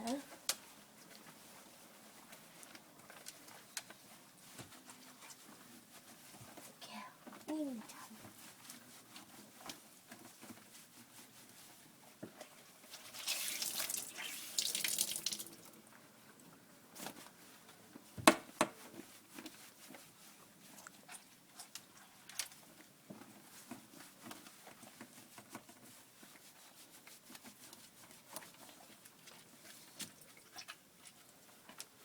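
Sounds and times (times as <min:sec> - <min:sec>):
water splashing into a bath: 0:13.0 - 0:15.8.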